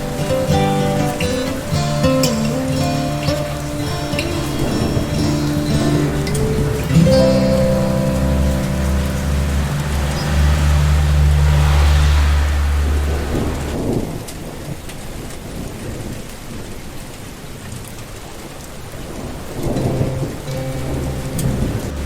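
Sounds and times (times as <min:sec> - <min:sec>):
steady rain: 0:00.0 - 0:22.0
low roll of thunder: 0:04.7 - 0:14.9, 0:19.6 - 0:22.0.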